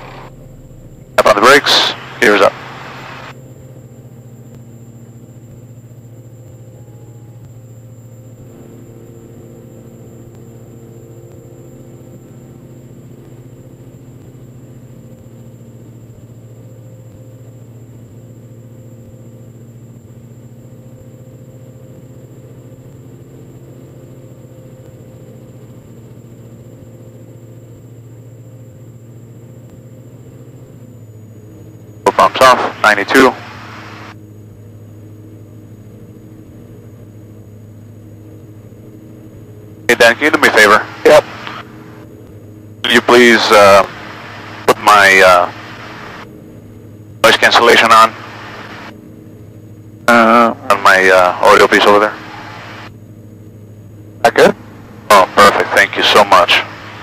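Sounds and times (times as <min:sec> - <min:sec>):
aircraft engines droning: 0:00.0 - 0:57.0.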